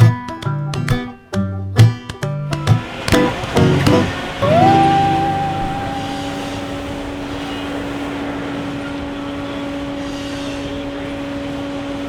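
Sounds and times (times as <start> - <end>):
machinery droning: 2.8 - 8.5.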